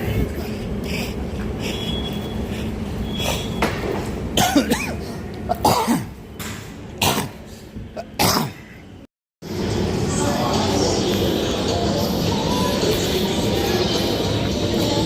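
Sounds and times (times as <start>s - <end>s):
person coughing: 4.4s - 6.1s, 8.0s - 8.7s.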